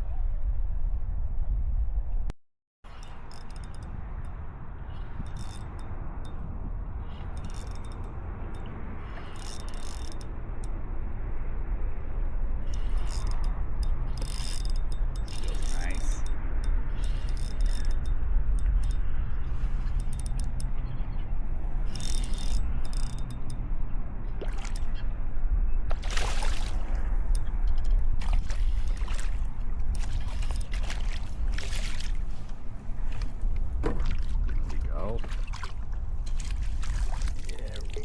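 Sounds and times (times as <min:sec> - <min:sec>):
steady low rumble: 0:00.0 - 0:02.3, 0:02.9 - 0:38.0
water sloshing around kayak: 0:24.3 - 0:25.0, 0:25.9 - 0:27.5, 0:28.1 - 0:38.0
short splashes: 0:24.4 - 0:25.0, 0:25.9 - 0:27.1, 0:28.2 - 0:38.0.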